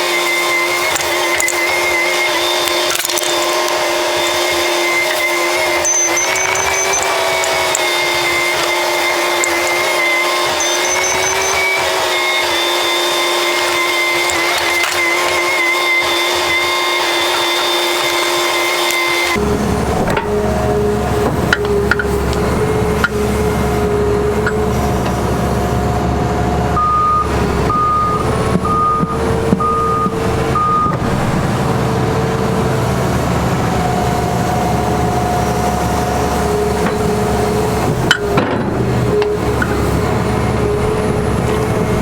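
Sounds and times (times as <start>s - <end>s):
steady high whine: 0.0s - 24.6s
excavator diesel engine: 0.0s - 42.0s
hydraulic whine: 0.0s - 42.0s
travel alarm beeps: 3.7s - 14.2s, 26.8s - 31.0s.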